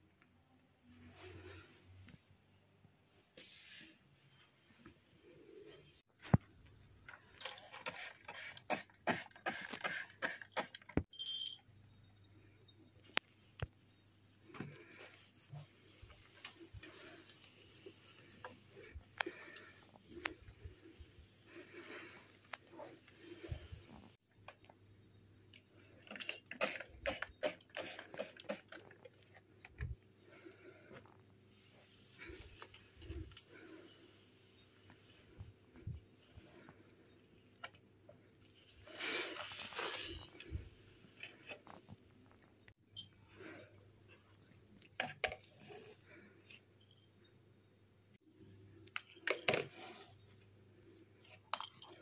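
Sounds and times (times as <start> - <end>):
scraping and clicking handling noises: 7.0 - 11.6, 48.8 - 50.5.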